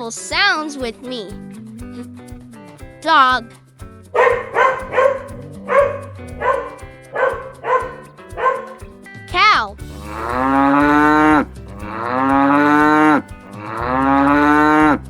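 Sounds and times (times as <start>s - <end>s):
light background music: 0.0s - 15.0s
dog barking: 4.2s - 8.9s
cow mooing: 10.0s - 15.0s.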